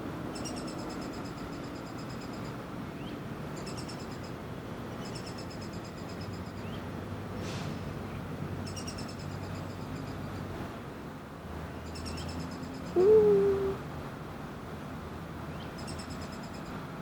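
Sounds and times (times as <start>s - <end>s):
woodpecker chattering calls: 0.4s - 2.6s, 3.6s - 4.4s, 5.0s - 6.8s, 8.6s - 10.2s, 11.8s - 13.2s, 15.6s - 16.7s.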